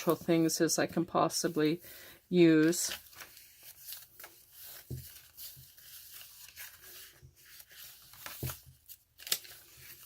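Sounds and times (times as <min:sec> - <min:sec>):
paper rustling: 0:02.4 - 0:10.0.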